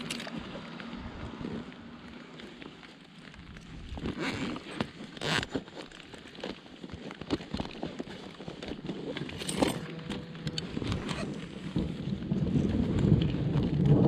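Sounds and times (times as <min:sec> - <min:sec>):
car road and wind noise: 0:00.0 - 0:04.6, 0:09.2 - 0:14.0.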